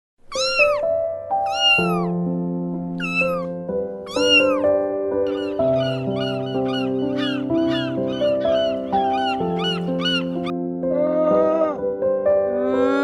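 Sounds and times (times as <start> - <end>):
cat meowing: 0.2 - 2.1, 3.0 - 4.7, 5.3 - 11.8
background music with held notes: 0.6 - 13.0.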